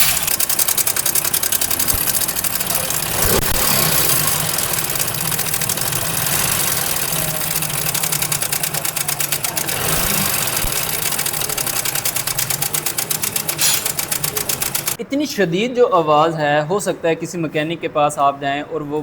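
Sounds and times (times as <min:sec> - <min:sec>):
motorcycle engine rattling: 0:00.0 - 0:15.0.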